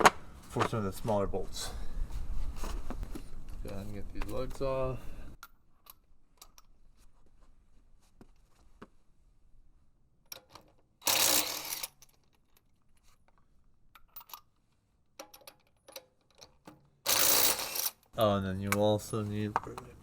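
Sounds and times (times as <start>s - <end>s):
impact wrench burst: 11.0s - 11.9s, 17.1s - 18.0s
metal sockets clinking: 14.0s - 14.5s, 15.2s - 18.0s.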